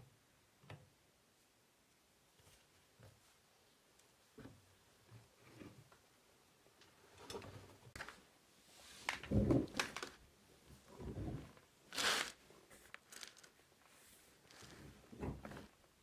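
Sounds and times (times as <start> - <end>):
rustles and scrapes: 7.2 - 15.8.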